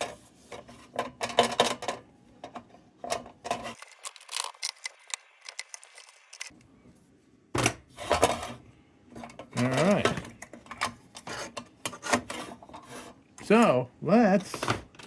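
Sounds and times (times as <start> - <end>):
small metal parts clicking: 3.7 - 6.5.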